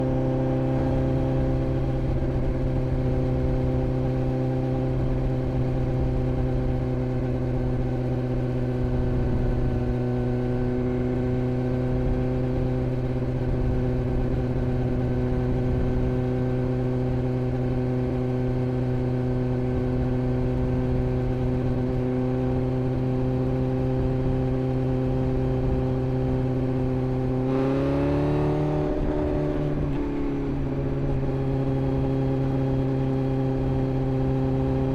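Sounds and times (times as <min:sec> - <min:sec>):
motorcycle engine idling: 0:00.0 - 0:27.4.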